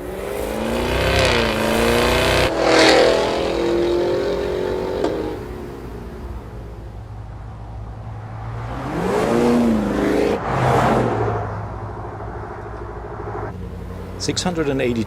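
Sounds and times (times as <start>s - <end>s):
sharp exhaust crack: 0.0s - 6.6s
car engine accelerating hard: 0.0s - 7.1s, 8.3s - 15.0s.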